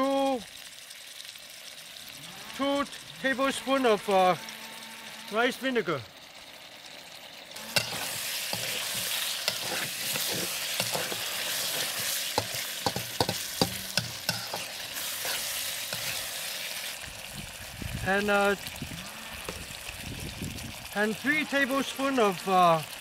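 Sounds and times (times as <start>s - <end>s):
sauce sizzling in a wok: 0.0s - 23.0s
metal spatula scraping a wok: 7.6s - 17.0s
spatula clacking against metal: 7.7s - 16.2s.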